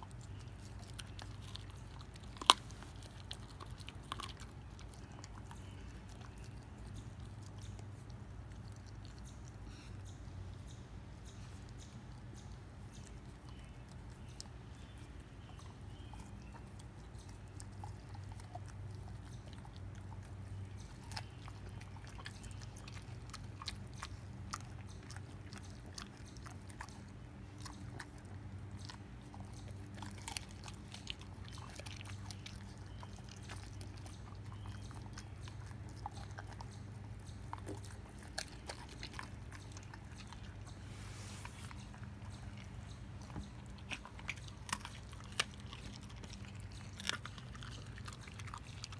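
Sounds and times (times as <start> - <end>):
dog chewing bone: 0.0 - 10.2, 11.3 - 48.9
teeth crunching on bone: 0.0 - 10.2, 11.6 - 40.8, 41.7 - 48.9.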